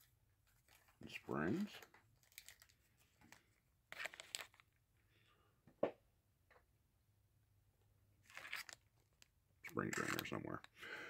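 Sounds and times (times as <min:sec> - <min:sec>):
small parts rustling: 0:00.0 - 0:04.8, 0:08.2 - 0:10.8.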